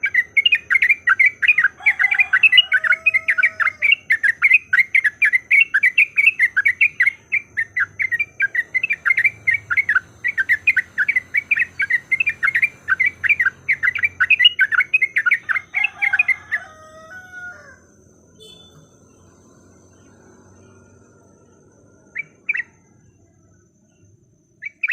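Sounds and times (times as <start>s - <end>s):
slurred whistled bird notes: 0.0s - 16.7s
bird chattering call: 0.0s - 17.5s.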